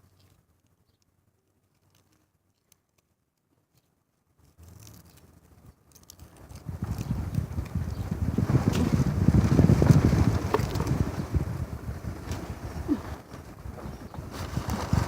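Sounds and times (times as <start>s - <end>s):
wind buffeting microphone: 6.5s - 15.0s.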